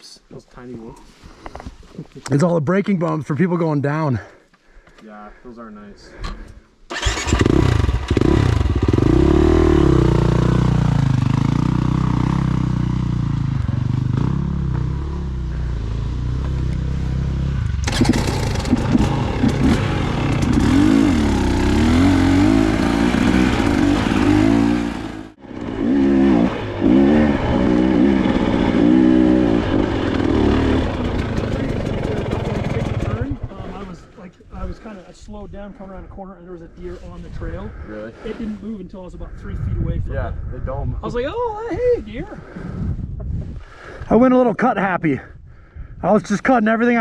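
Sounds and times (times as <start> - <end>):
dirt bike engine revving: 6.9 - 33.5.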